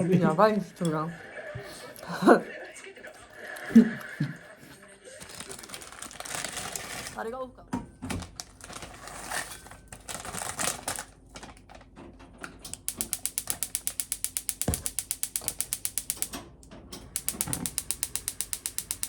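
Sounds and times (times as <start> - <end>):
rapid mechanical clicking: 12.6 - 19.0.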